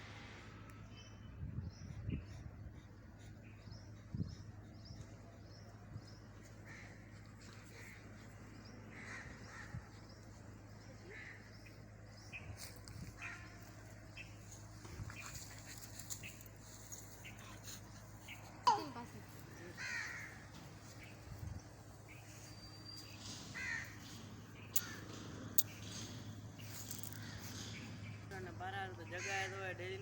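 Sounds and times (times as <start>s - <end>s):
steady low hum: 0.0s - 30.0s
crows cawing: 6.6s - 7.1s, 8.9s - 10.0s, 19.6s - 21.2s, 23.3s - 24.2s, 24.8s - 25.2s, 26.8s - 27.7s, 29.1s - 29.7s.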